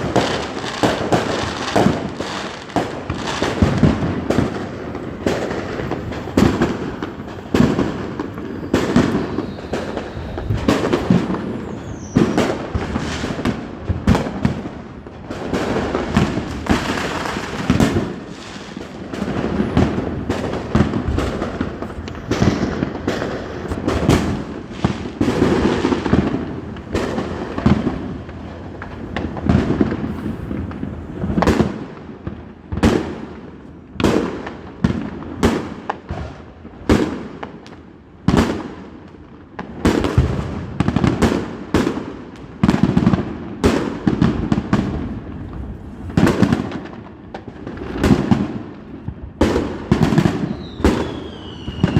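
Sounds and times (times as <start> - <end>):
fireworks bangs: 0.0 - 51.9.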